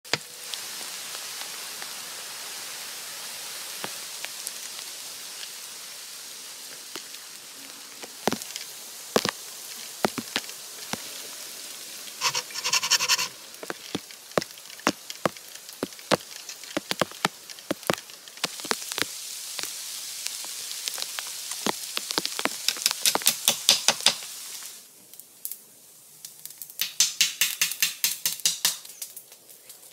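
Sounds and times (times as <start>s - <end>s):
steady rain hiss: 0.1s - 29.9s
wooden poles knocking: 12.2s - 13.3s
rapid strokes: 12.2s - 13.4s.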